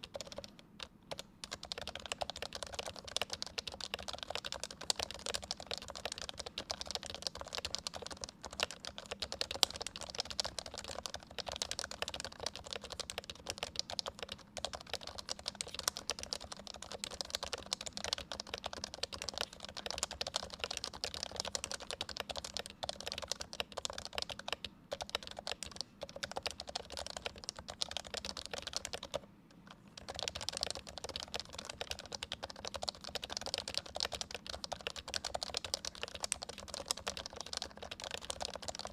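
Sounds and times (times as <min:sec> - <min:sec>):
keyboard typing: 0:00.0 - 0:38.9.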